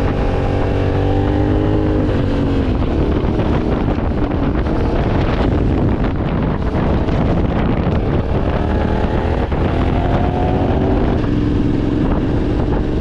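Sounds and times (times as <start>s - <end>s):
motorcycle engine running: 0.0s - 13.0s
wind rush over microphone: 0.0s - 13.0s.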